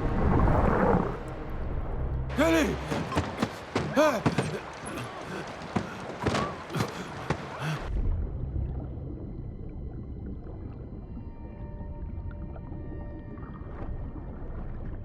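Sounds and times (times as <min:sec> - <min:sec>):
floodwater splashing and sloshing: 0:02.3 - 0:15.0
muffled underwater rumble: 0:07.9 - 0:15.0.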